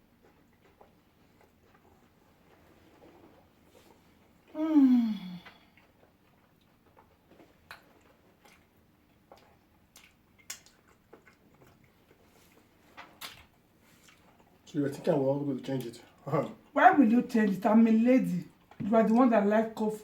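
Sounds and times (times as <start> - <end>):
soft chewing: 0.0 - 20.0
mouth clicks and smacks: 5.4 - 12.2, 12.9 - 14.6.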